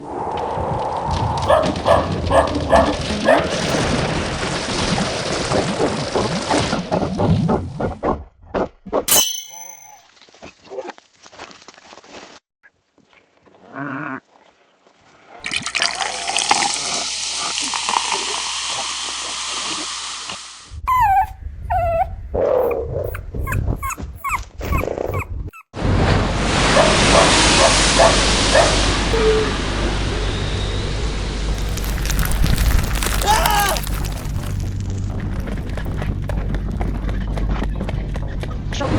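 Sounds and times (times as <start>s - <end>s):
dog barking: 1.3s - 3.9s, 26.7s - 28.9s
dog whimpering and yelping: 1.4s - 3.8s, 20.9s - 25.7s.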